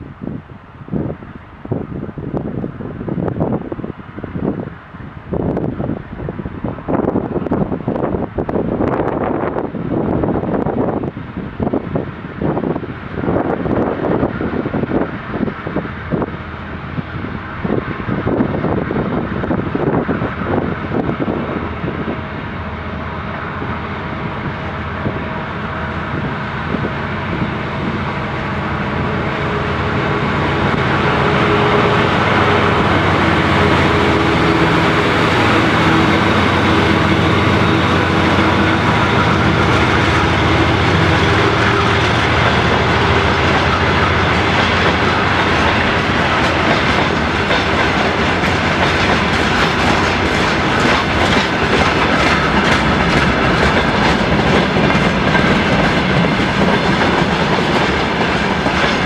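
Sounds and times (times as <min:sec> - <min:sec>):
diesel locomotive engine droning: 0:00.0 - 0:59.0.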